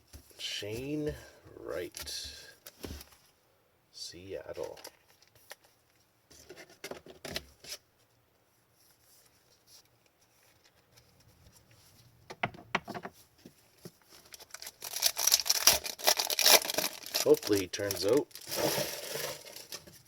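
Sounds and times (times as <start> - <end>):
cards rustling and tapping: 13.8 - 20.0
foil wrapper crinkling: 14.1 - 20.0.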